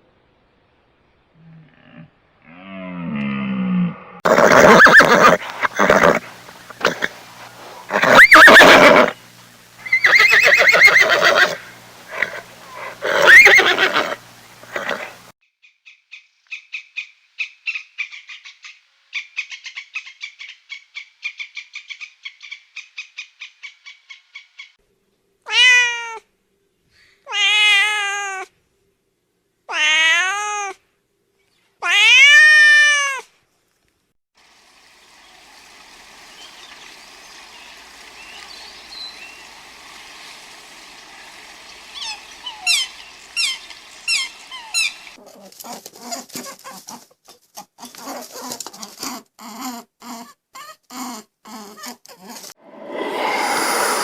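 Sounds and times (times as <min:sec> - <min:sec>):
loud rough animal calls: 0:01.4 - 0:15.3, 0:52.6 - 0:54.0.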